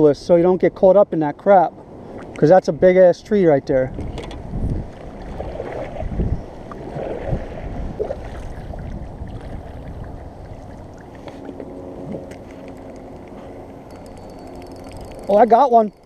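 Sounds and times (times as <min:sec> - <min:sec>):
wind rumbling on microphone: 0:03.6 - 0:16.0
water lapping around a kayak: 0:04.0 - 0:13.8.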